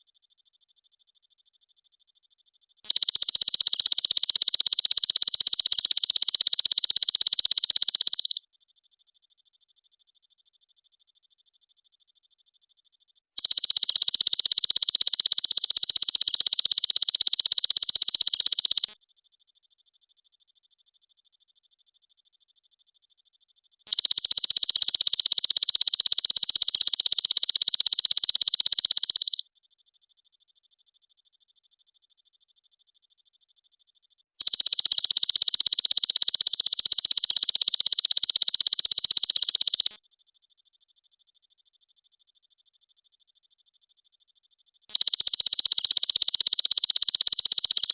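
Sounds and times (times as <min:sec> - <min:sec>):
faint high chirps: 0:00.0 - 0:08.5, 0:13.4 - 0:19.0, 0:23.9 - 0:29.4, 0:34.4 - 0:40.0, 0:40.8 - 0:47.9
high-pitched insect trill: 0:02.9 - 0:08.4, 0:13.4 - 0:19.0, 0:23.9 - 0:29.4, 0:34.4 - 0:40.0, 0:44.9 - 0:47.9.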